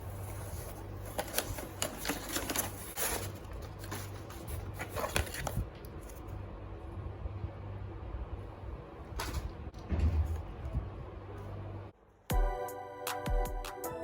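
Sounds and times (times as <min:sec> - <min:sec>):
packaging being handled: 0:00.0 - 0:06.3
steady low hum: 0:00.0 - 0:12.4.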